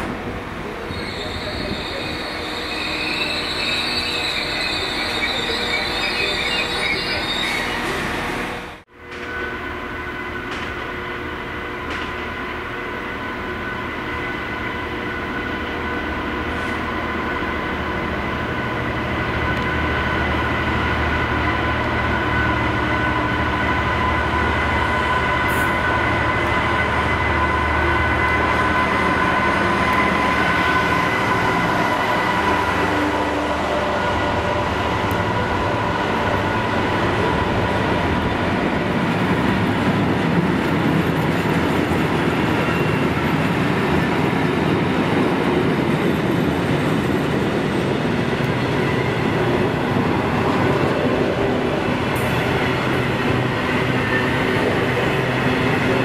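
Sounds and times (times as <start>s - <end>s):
diesel locomotive rumbling: 0.0s - 56.0s
high-pitched wheel squeal: 0.9s - 8.0s.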